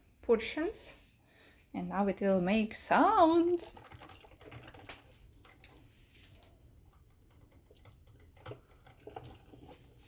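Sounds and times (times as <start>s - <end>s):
coffee maker ticking and clicking: 3.2s - 5.8s, 6.5s - 10.0s.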